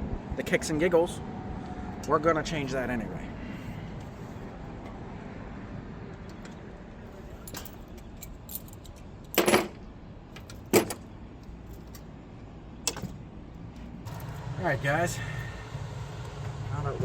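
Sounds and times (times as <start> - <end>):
low background hum: 0.0 - 17.0
metal parts clinking: 7.3 - 12.1.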